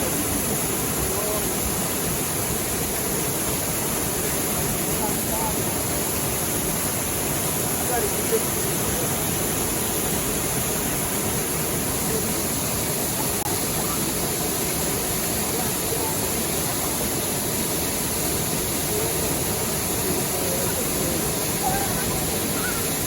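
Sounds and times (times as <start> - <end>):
faint voices: 0.0 - 23.0
waterfall rushing: 0.0 - 23.0.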